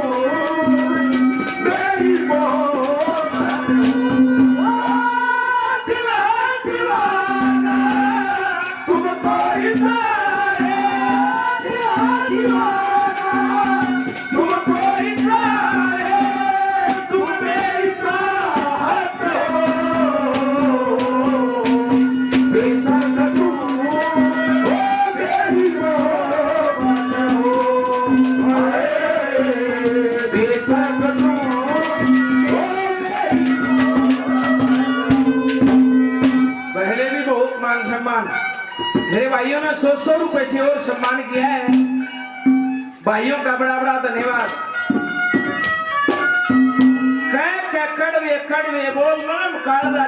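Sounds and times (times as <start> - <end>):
hand drum fast beat: 0.0 - 5.4, 6.8 - 36.9, 40.8 - 42.0, 44.3 - 47.4.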